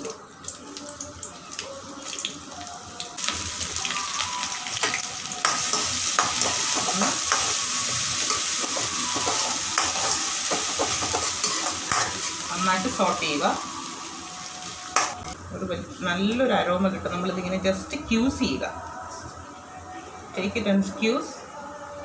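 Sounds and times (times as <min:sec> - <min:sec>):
spices sizzling in hot oil: 0:00.0 - 0:15.4
metal spoon stirring pan: 0:04.8 - 0:12.6.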